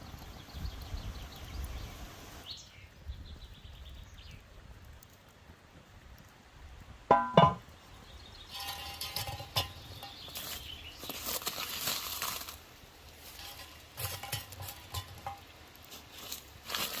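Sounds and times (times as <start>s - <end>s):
burger frying: 8.5s - 17.0s.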